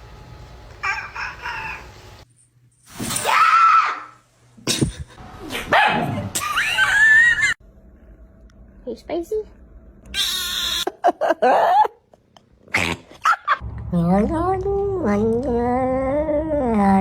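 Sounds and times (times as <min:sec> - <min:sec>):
pet animal wavering cries: 0:10.1 - 0:10.9.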